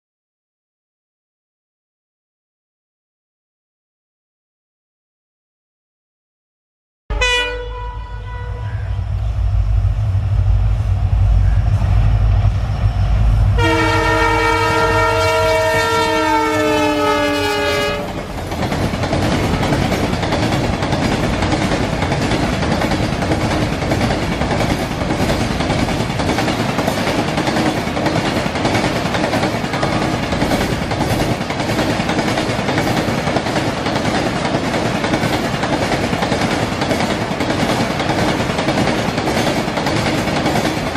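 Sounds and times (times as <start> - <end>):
train horn blast: 7.1 - 9.5, 13.6 - 18.3
train wagons rattling past: 7.2 - 40.9
locomotive engines running: 18.0 - 40.9.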